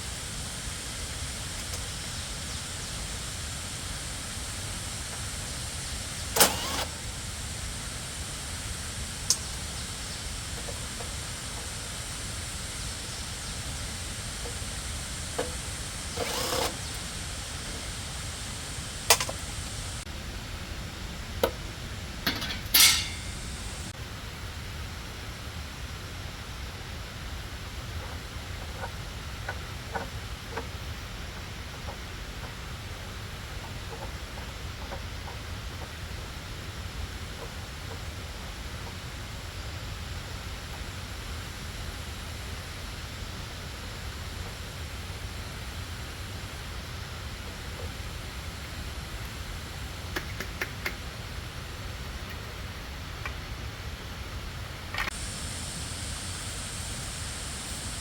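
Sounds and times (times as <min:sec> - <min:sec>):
steady background hiss: 0:00.0 - 0:58.0
hand tools striking metal: 0:22.2 - 0:23.6.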